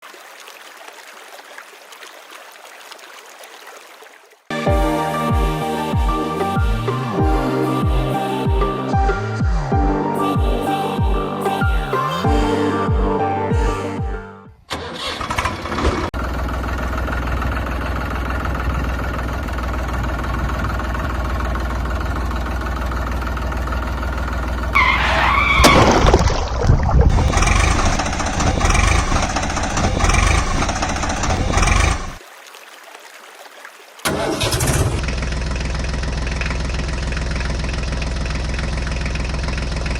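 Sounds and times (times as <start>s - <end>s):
vehicle engine droning: 4.8s - 10.1s, 15.2s - 26.0s, 27.1s - 32.2s, 34.1s - 39.9s.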